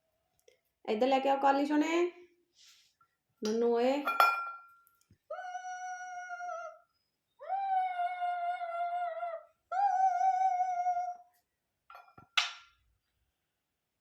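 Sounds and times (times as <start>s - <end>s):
dog howling: 5.3s - 6.8s, 7.4s - 11.2s.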